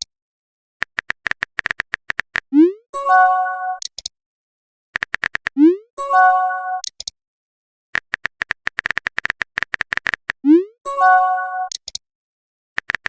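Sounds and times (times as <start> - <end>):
quick typing clicks: 5.0 - 5.6, 8.0 - 10.4, 12.8 - 13.0.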